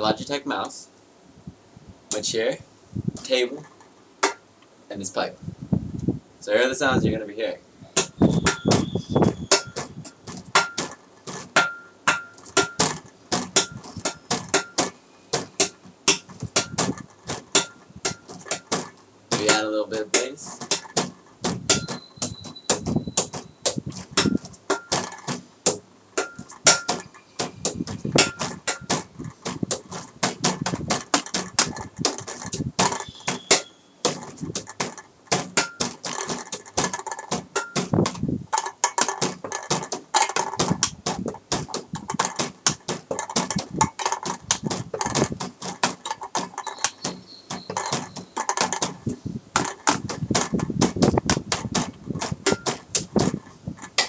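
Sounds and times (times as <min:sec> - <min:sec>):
percussion on everyday objects: 0:03.1 - 0:04.5, 0:07.8 - 0:54.0
low thumps: 0:20.3 - 0:54.0.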